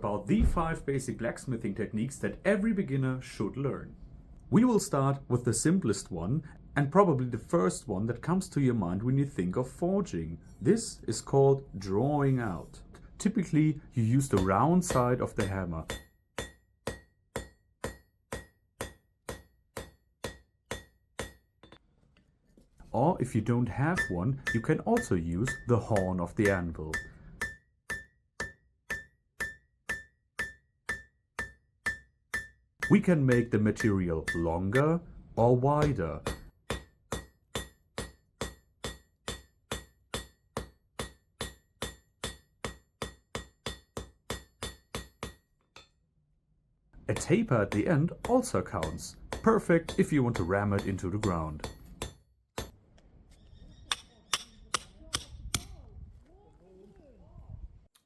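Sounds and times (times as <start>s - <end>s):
hammer striking metal on anvil: 14.2s - 21.8s, 23.8s - 35.0s, 35.8s - 46.0s, 47.1s - 52.8s, 53.9s - 55.7s.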